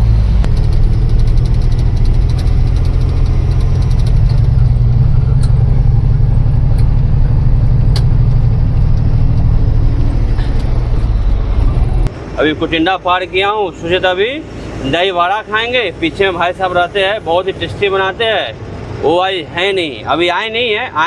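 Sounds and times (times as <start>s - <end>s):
truck engine running: 0.0s - 12.5s
faint clicks and rattles: 0.1s - 12.1s.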